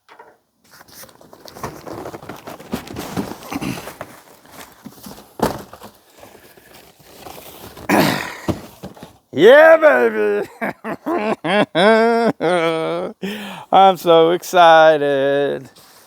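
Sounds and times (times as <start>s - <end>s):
knocks and scrapes: 0.1s - 9.2s
packaging rustling and crinkling: 0.7s - 9.4s, 15.7s - 16.0s.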